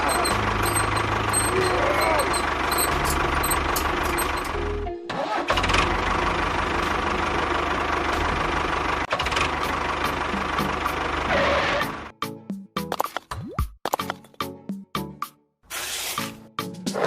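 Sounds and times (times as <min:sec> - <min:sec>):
tractor engine chugging: 0:00.0 - 0:12.1.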